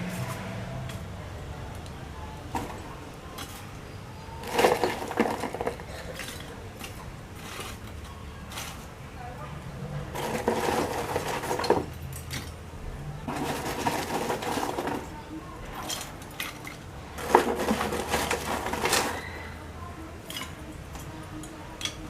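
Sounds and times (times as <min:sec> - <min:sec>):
metal cookware clattering: 0:02.5 - 0:09.0, 0:10.1 - 0:12.6, 0:13.3 - 0:22.0.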